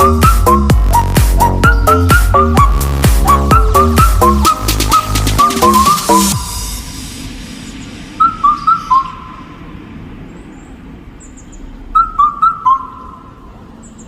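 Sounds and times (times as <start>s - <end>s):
whistle-like melody: 0.0s - 6.9s, 8.2s - 9.3s
faint high bird chirps: 1.4s - 6.5s, 7.7s - 9.6s, 10.2s - 14.0s.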